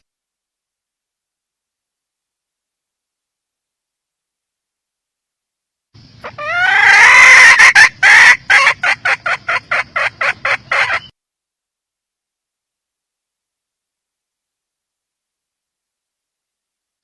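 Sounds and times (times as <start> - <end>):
hen squawking and clucking: 6.2 - 11.1.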